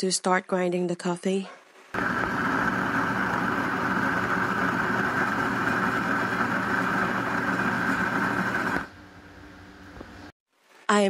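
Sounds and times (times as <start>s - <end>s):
coffee grinder grinding beans: 2.0s - 8.9s.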